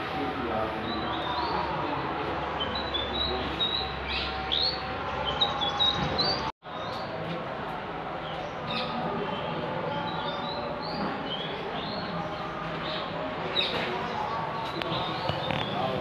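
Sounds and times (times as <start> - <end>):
background hubbub: 0.0 - 16.0
small birds chirping: 8.2 - 16.0.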